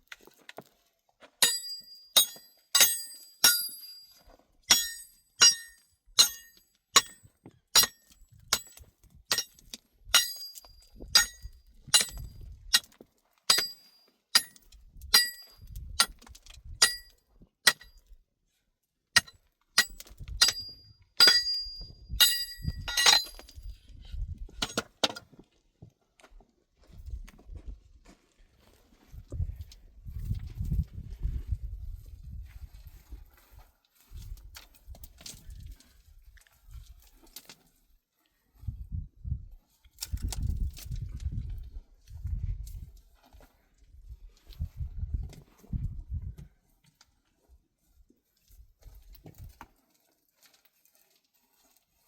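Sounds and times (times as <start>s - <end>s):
ringing blows on stone: 4.7s - 7.2s, 19.2s - 23.5s.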